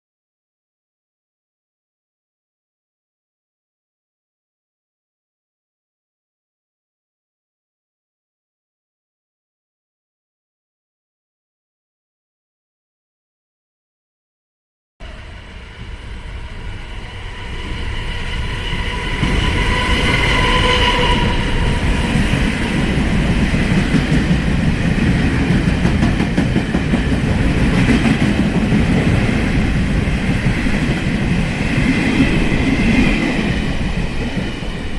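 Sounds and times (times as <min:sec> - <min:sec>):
train rumble and wheel clatter: 0:15.0 - 0:34.9.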